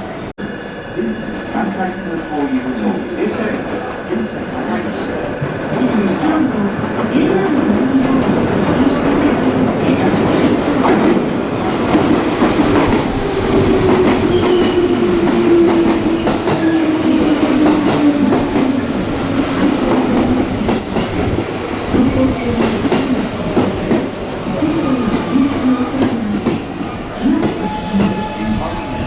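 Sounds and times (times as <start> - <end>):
high brake squeal: 20.7 - 21.4, 27.6 - 29.0.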